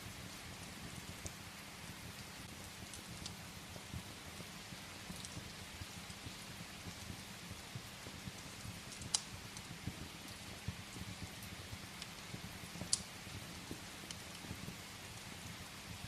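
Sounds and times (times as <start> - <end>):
rain falling: 0.0 - 16.0
sharp fire pops: 0.0 - 16.0
wood fire crackling: 0.0 - 16.0.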